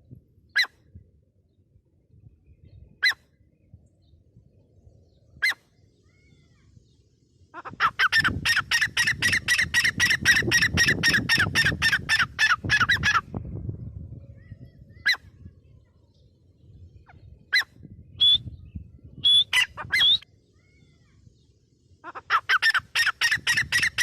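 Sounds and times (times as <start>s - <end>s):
francolin calling: 7.6s - 13.2s, 22.0s - 24.0s.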